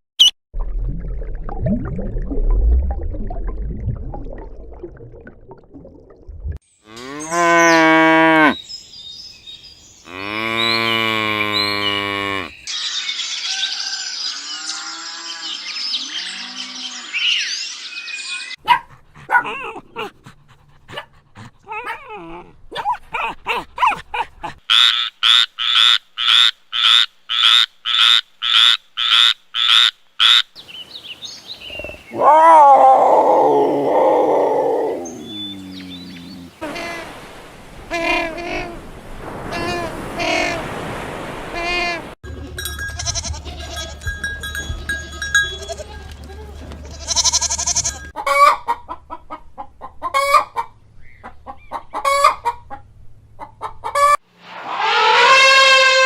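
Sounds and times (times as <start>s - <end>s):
animal low rumble: 33.1s - 36.6s
long drawn-out animal calls: 54.7s - 56.0s.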